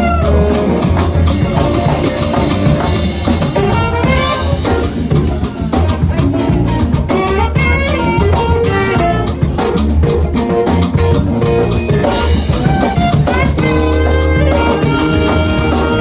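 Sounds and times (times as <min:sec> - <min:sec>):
funk band playing: 0:00.0 - 0:16.0.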